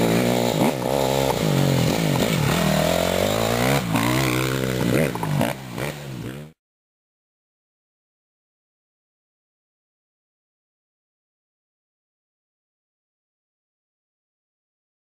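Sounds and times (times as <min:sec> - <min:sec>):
motorcycle engines revving: 0:00.0 - 0:06.6.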